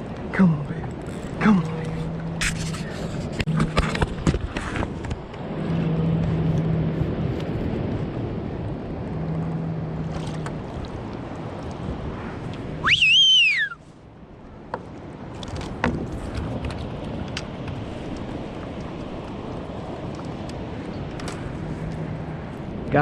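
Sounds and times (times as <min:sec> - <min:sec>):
water around a kayak: 0:00.0 - 0:23.0
wind: 0:00.0 - 0:23.0
rising and falling whistle: 0:12.8 - 0:13.8.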